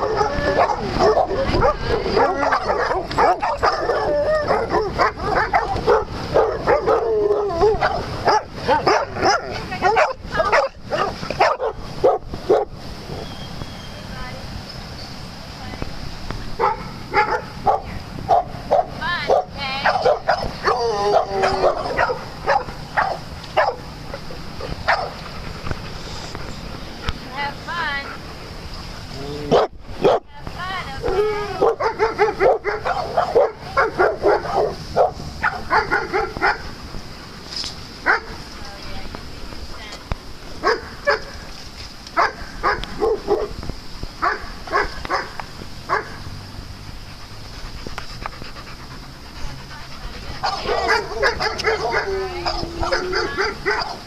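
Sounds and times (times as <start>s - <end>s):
dog barking: 0.0s - 12.7s, 16.6s - 23.8s, 24.6s - 25.1s, 29.5s - 30.2s, 31.6s - 36.6s, 38.1s - 38.4s, 40.6s - 41.4s, 42.2s - 43.5s, 44.2s - 46.2s, 50.4s - 54.0s.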